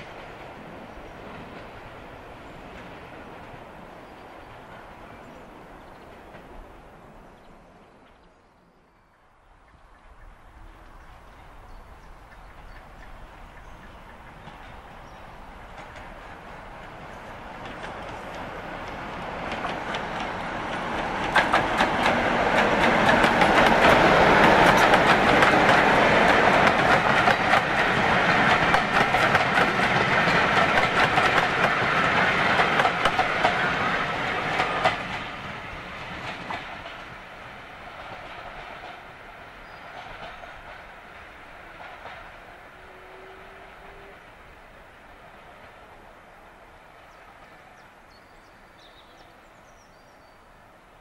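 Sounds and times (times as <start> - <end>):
diesel locomotive passing: 0.0 - 8.2, 9.1 - 51.0
wheels clacking over rail joints: 12.5 - 42.5.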